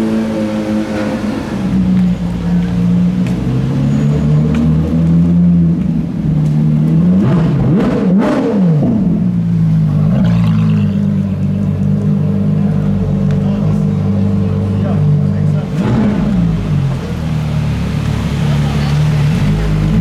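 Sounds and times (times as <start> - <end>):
car engines running at low revs: 0.0 - 20.0.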